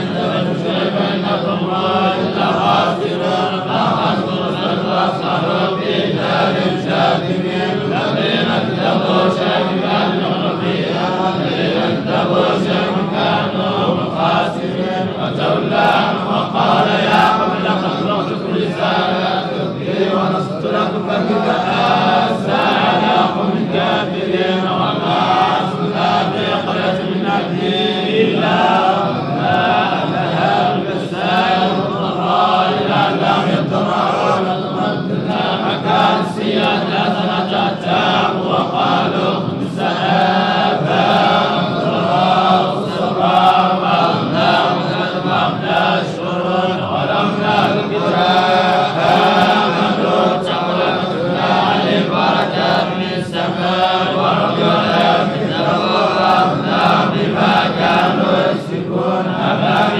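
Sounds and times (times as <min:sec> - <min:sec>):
person chanting recitation: 0:00.0 - 0:59.9.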